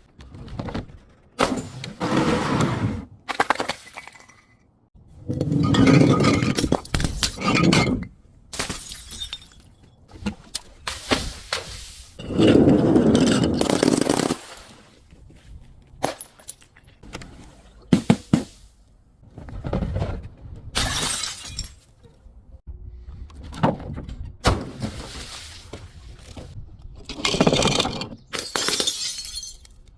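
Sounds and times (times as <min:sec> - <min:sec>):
glass being crushed: 0:08.6 - 0:09.8, 0:28.3 - 0:29.9.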